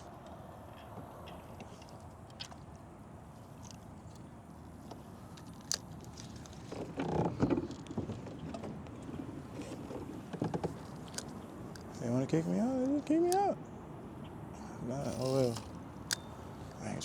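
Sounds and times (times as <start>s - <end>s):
kayak handling noise: 0.0s - 13.6s, 14.8s - 16.9s
water: 4.6s - 11.8s.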